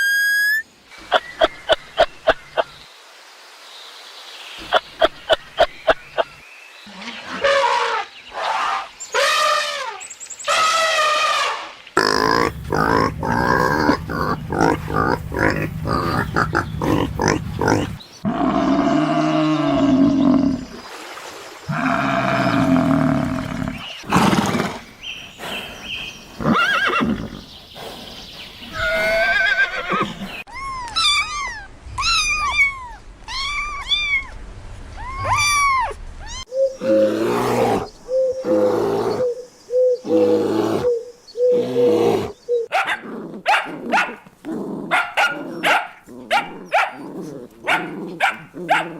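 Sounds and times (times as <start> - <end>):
deep drawn-out animal calls: 7.0 - 20.7, 21.7 - 24.8
short repeated animal calls: 10.5 - 18.0
high arching chirps: 12.0 - 18.4
pulsing animal grunts: 12.0 - 20.6.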